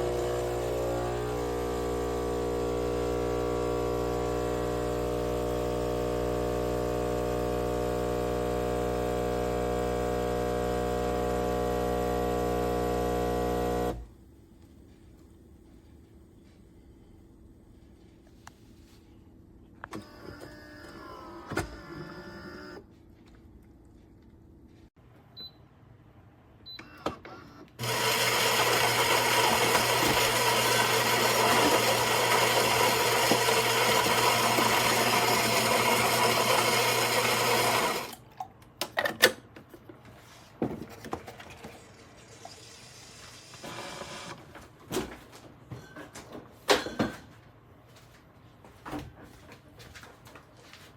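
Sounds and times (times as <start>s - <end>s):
coffee machine motor humming: 0.0s - 14.1s, 27.8s - 38.2s.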